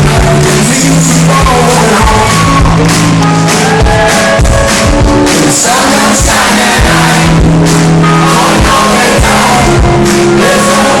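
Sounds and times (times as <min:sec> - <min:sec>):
person singing: 0:00.0 - 0:04.4, 0:05.2 - 0:11.0
live band music: 0:00.0 - 0:11.0
steady drum beat: 0:00.0 - 0:11.0.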